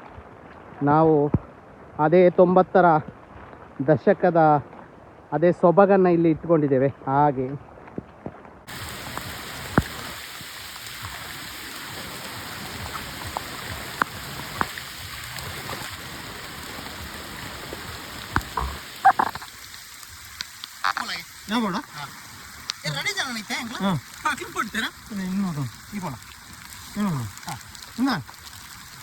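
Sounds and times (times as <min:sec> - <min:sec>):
rain hissing: 0:08.7 - 0:29.0
drops tapping: 0:18.3 - 0:19.6.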